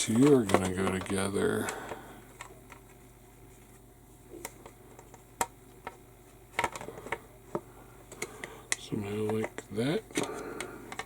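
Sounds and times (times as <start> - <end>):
plastic rubbing: 0.0 - 5.2.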